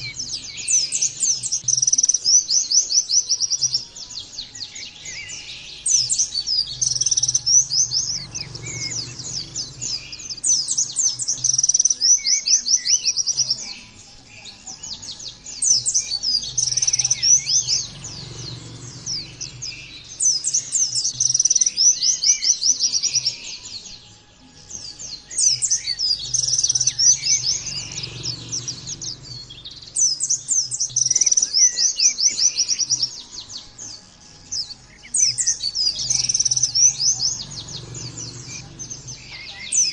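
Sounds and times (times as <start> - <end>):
white-eye twittering song: 0.0 - 39.9.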